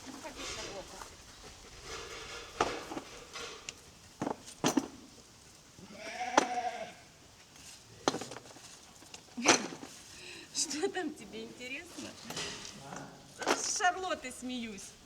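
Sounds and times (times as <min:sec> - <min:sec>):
sheep or goat bleating: 0:05.8 - 0:07.1
stones dropped into metal bucket: 0:08.0 - 0:10.0, 0:13.4 - 0:13.9.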